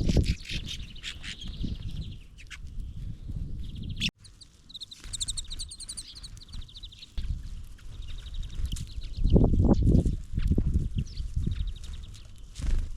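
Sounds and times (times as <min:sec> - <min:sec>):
bird twittering trill: 0:00.0 - 0:10.1
songbirds chirping: 0:00.1 - 0:12.9.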